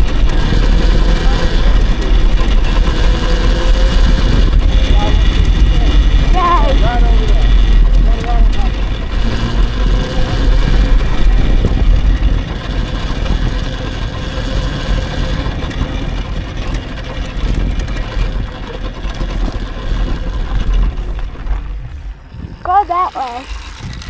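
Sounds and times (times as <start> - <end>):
wind buffeting microphone: 0.0 - 14.0
dirt bike rolling rumble: 0.0 - 24.0.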